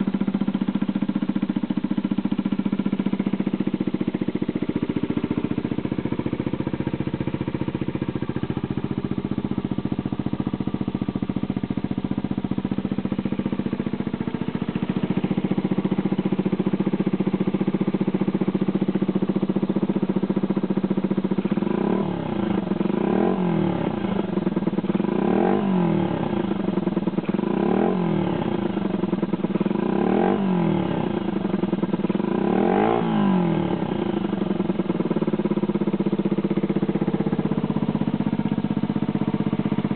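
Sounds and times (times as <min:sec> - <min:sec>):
small motorcycle engine revving: 0:21.5 - 0:35.6.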